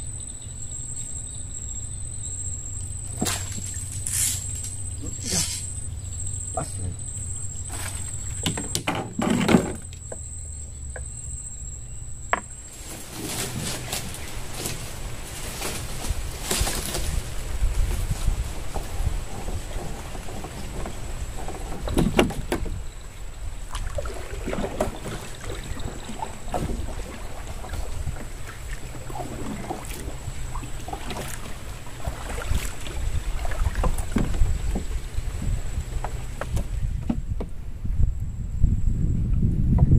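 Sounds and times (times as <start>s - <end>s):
insect buzzing: 0.0s - 36.9s
rustle of leaves: 2.5s - 8.4s, 12.6s - 21.9s
paddle pulling through water: 2.7s - 10.4s, 12.6s - 37.6s
wind on microphone: 13.5s - 39.9s.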